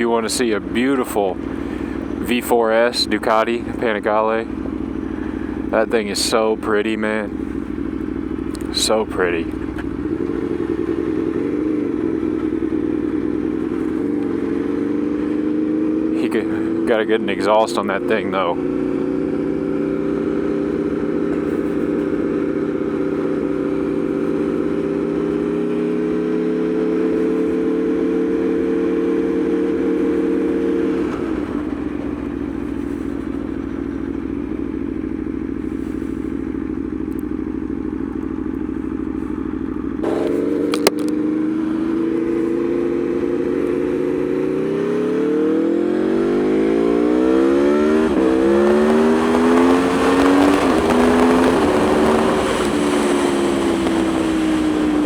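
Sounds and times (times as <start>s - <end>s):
motorcycle engine revving: 0.0s - 55.0s
sharp click: 40.2s - 41.2s.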